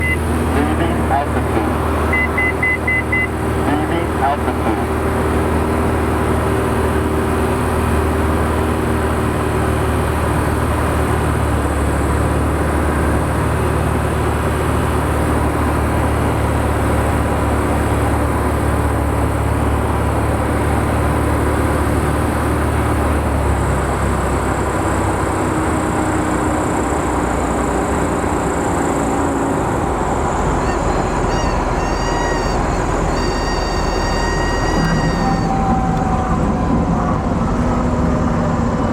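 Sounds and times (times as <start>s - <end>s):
aircraft engine and propeller drone: 0.0s - 38.9s.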